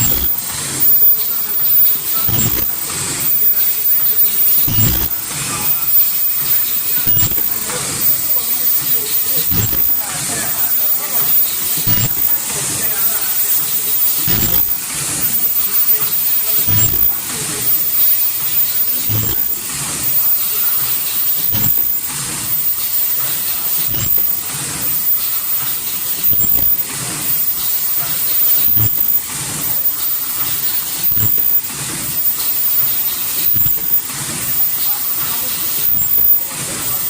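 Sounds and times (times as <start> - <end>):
air hiss: 0.0 - 37.0
high-pitched machine whine: 0.0 - 37.0
machine thud: 2.2 - 3.6, 4.4 - 5.3, 7.0 - 7.8, 9.4 - 10.0, 11.8 - 12.3, 14.2 - 15.7, 16.6 - 18.2, 18.8 - 20.4, 21.2 - 26.8.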